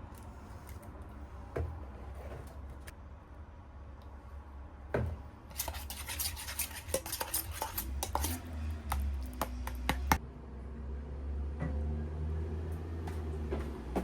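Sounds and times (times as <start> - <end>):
quick clicks and scrapes: 5.5 - 9.1.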